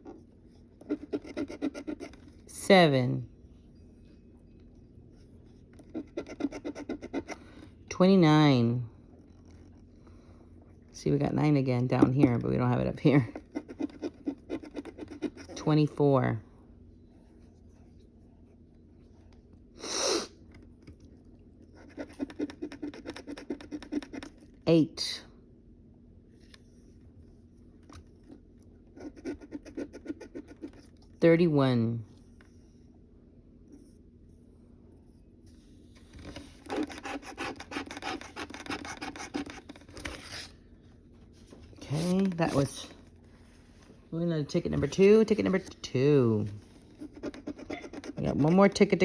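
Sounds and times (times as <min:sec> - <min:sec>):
lottery ticket being scratched: 0:00.8 - 0:03.0, 0:05.8 - 0:07.5, 0:21.8 - 0:24.4, 0:36.4 - 0:40.5, 0:41.8 - 0:43.0, 0:44.5 - 0:49.0.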